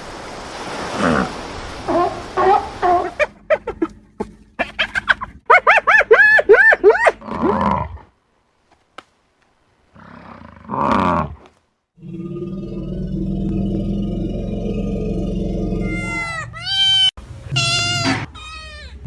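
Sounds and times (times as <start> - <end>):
animal cries: 15.8 - 19.0.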